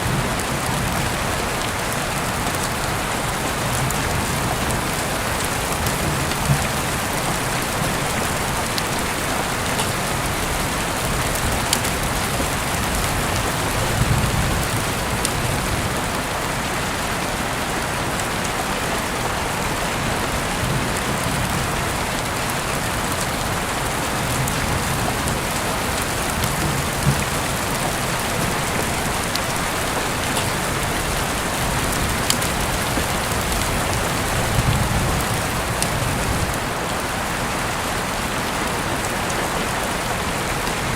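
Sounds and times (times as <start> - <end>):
raindrop ticks: 0.0 - 16.2, 20.2 - 36.6
heavy rain hissing: 0.0 - 40.9.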